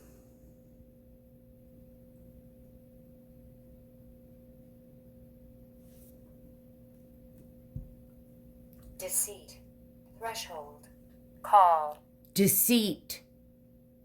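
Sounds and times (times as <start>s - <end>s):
soft rustle: 5.8s - 6.4s.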